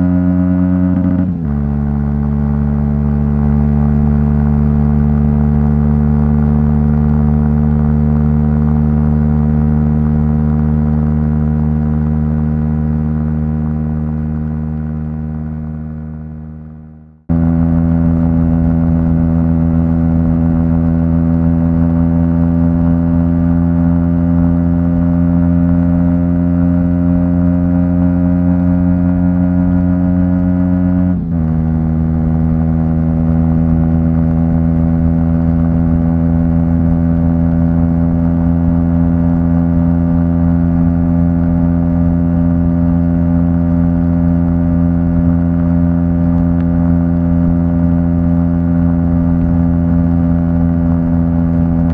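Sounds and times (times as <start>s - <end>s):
motorcycle engine running loudly: 0.0s - 51.9s.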